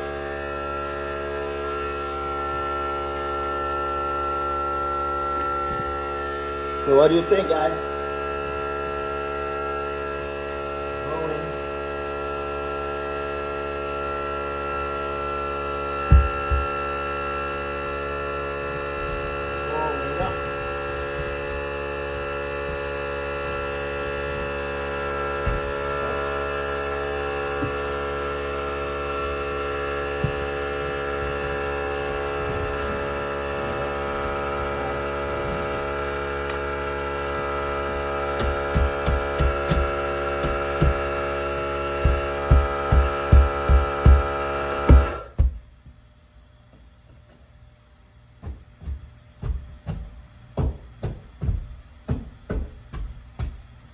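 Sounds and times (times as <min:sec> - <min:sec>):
electrical hum: 0:00.0 - 0:53.9
sharp thumps and knocks: 0:16.0 - 0:16.8, 0:25.3 - 0:26.0, 0:30.1 - 0:33.1, 0:38.3 - 0:46.0, 0:48.4 - 0:53.8.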